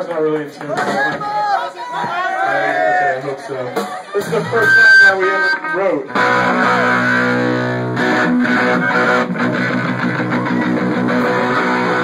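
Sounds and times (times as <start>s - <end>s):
bass guitar: 4.2s - 12.0s
electric guitar strumming: 4.6s - 12.0s.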